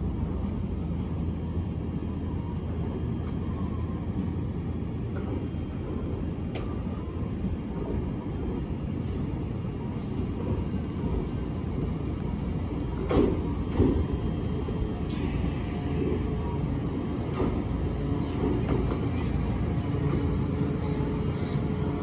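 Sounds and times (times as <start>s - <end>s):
high wheel squeal: 14.6s - 16.4s, 17.8s - 22.0s.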